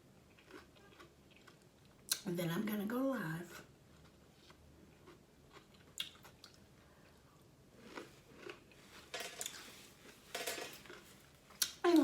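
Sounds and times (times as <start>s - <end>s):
chewing and biting food: 0.3s - 2.2s, 3.9s - 6.6s, 7.8s - 8.8s.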